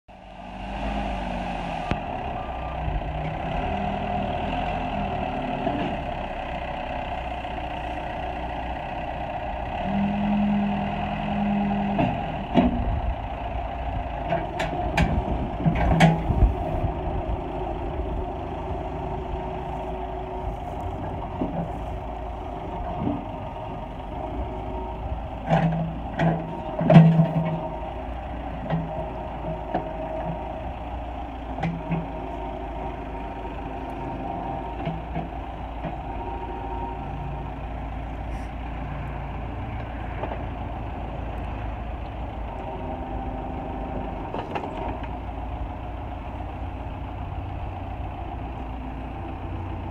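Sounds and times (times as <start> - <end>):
backhoe engine running: 0.1 - 49.9.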